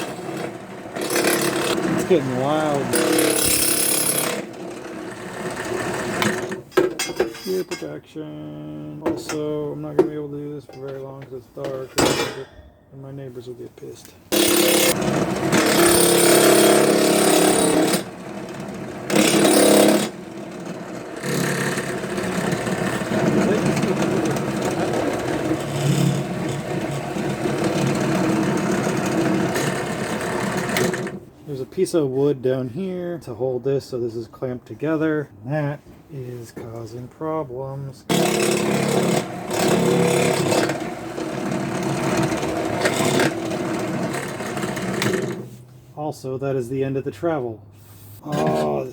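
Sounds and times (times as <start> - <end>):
drill press cutting metal: 0.0 - 6.6, 14.3 - 31.2, 38.1 - 45.4.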